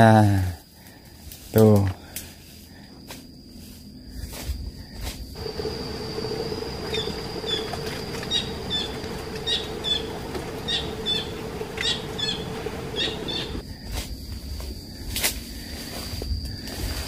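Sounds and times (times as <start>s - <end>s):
bird chirping: 5.4s - 13.6s
steady low hum: 5.4s - 13.6s.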